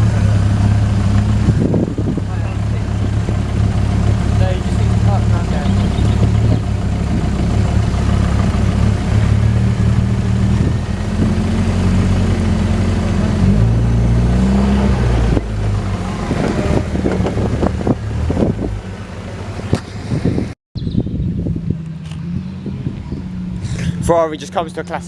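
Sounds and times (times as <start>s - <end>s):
car engine running at low revs: 0.0s - 25.0s.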